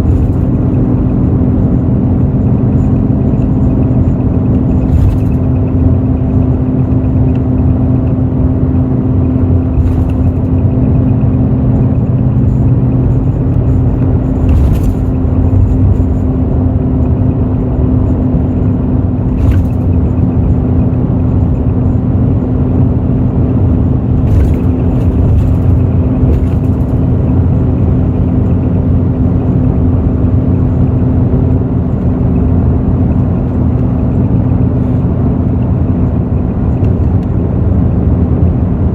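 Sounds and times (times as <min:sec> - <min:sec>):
bus diesel engine rumbling: 0:00.0 - 0:38.9
brief clicks and rattles: 0:09.7 - 0:10.7.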